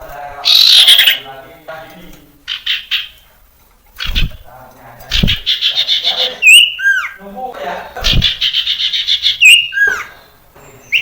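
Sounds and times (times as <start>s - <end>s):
bird singing buzzy chattering phrases: 0.4s - 1.5s, 2.4s - 3.3s, 4.0s - 4.5s, 5.1s - 11.0s
low thumps: 5.1s - 5.5s, 8.0s - 8.4s.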